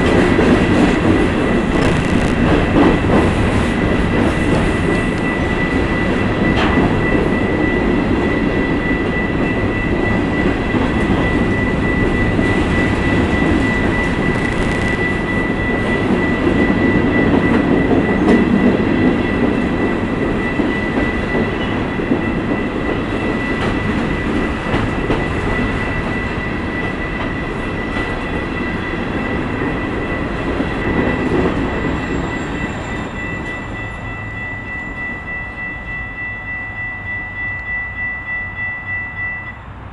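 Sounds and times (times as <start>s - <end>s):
freight train rumbling past: 0.0s - 39.9s
high-pitched tone: 5.1s - 18.3s.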